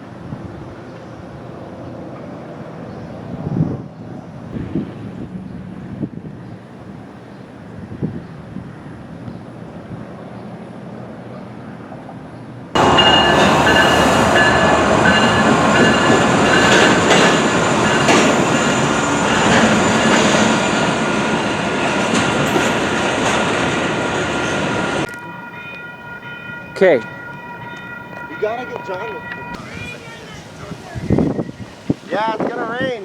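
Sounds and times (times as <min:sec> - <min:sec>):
train cars rumbling and rattling: 0:00.0 - 0:33.0
wind noise: 0:03.1 - 0:10.2, 0:28.8 - 0:33.0
train wheel squeal: 0:12.8 - 0:23.0.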